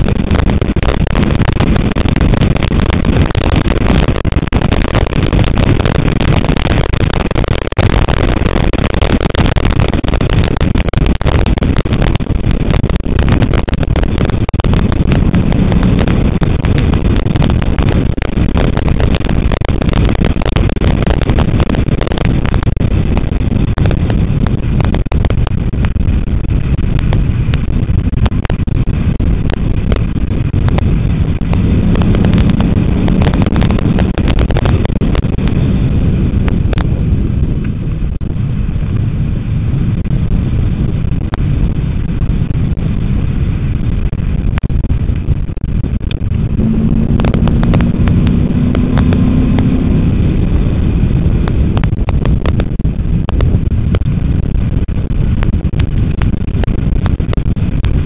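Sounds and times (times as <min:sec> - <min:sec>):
wind rumble on microphone: 0:00.0 - 0:58.0
car engine revving hard: 0:31.5 - 0:34.1, 0:46.4 - 0:50.4.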